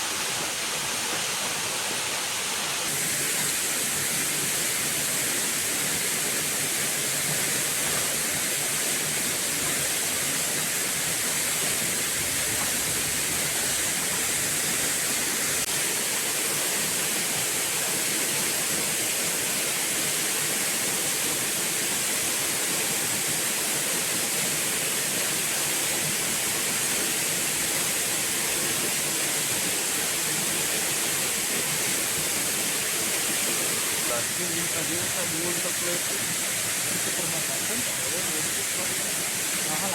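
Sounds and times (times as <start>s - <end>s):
rush of falling water: 0.0s - 39.9s.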